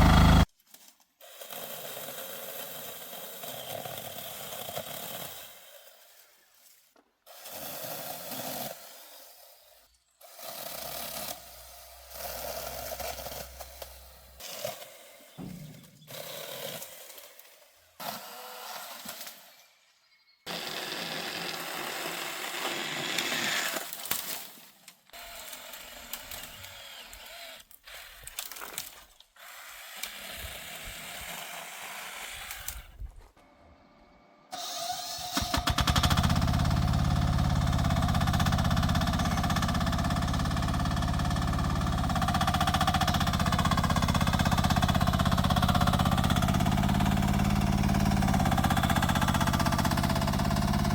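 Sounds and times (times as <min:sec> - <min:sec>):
excavator engine running: 0:00.0 - 0:00.5, 0:10.7 - 0:14.4, 0:35.4 - 0:50.9.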